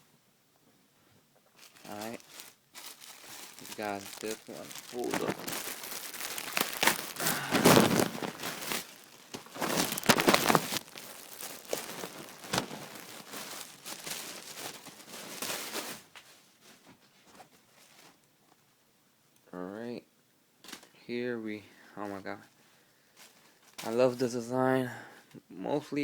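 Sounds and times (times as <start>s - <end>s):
packaging and fabric rustling: 1.6s - 16.9s.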